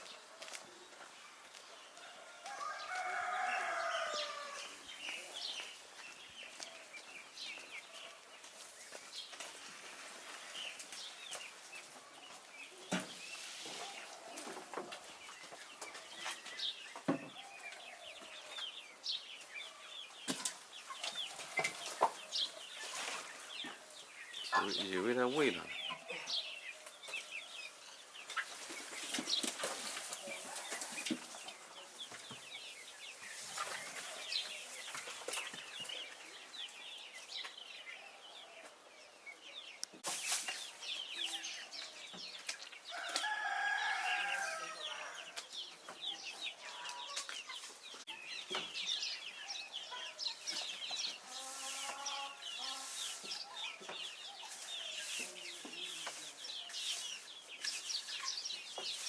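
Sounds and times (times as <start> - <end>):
chicks peeping: 0.0 - 59.0
adult chicken call: 2.2 - 4.8, 42.9 - 45.4.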